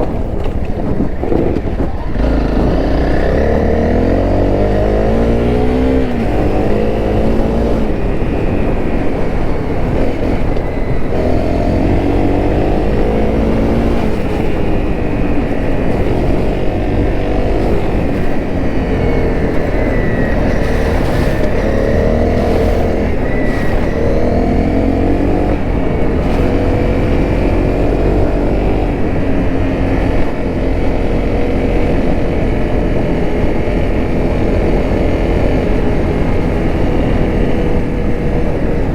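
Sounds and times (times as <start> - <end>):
motorcycle engine revving through gears: 0.0 - 38.9.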